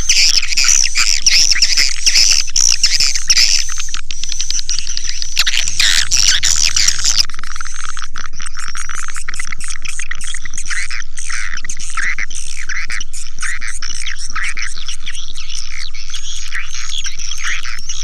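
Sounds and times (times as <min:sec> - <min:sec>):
swiftlets twittering and chirping: 0:00.0 - 0:18.0.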